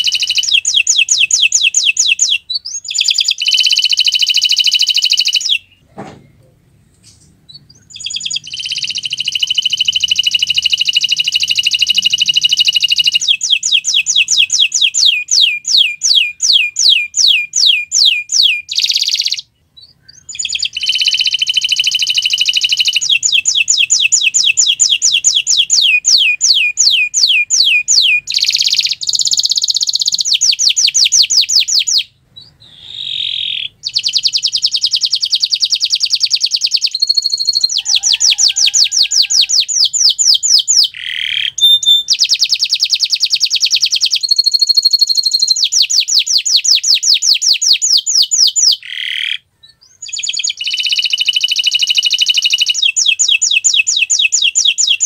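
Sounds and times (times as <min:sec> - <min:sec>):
canary singing trills: 0:00.0 - 0:05.9, 0:07.0 - 0:55.0.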